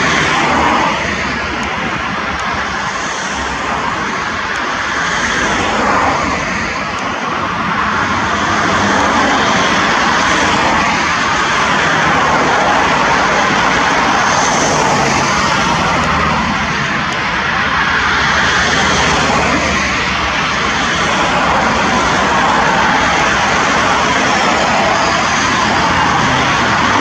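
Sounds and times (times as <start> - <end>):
jet engines rushing: 0.0 - 27.0.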